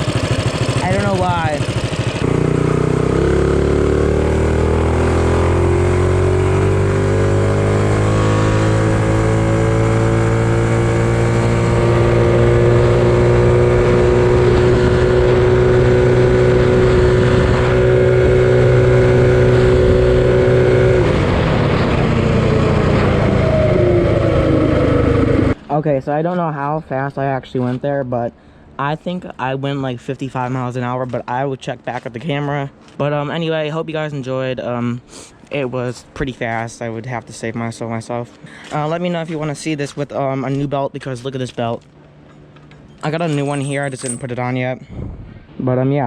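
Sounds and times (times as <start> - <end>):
minibike engine at full throttle: 0.0 - 25.6.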